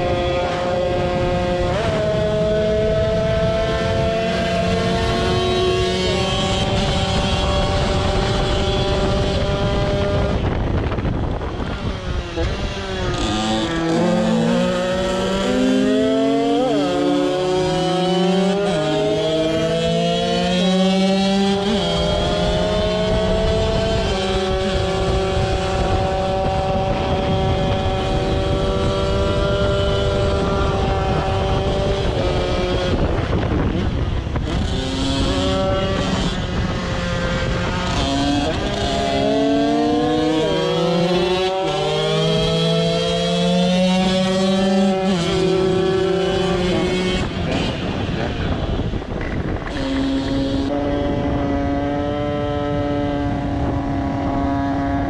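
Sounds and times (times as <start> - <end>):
moped engine running at speed: 21.0 - 42.5.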